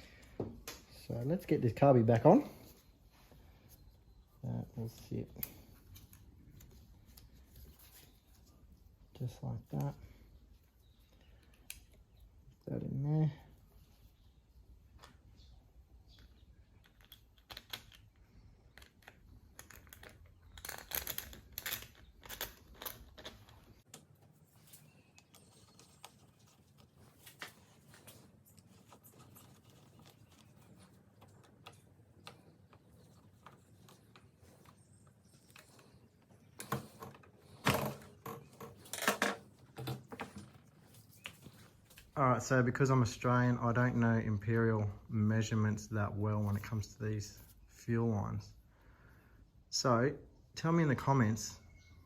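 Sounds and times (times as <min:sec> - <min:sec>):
small plastic and metal parts clicking: 0:16.1 - 0:24.1.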